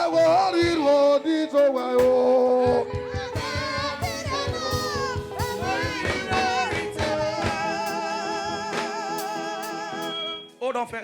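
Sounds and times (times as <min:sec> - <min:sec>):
person singing: 0:00.0 - 0:10.5
quick drum beat: 0:02.0 - 0:08.0.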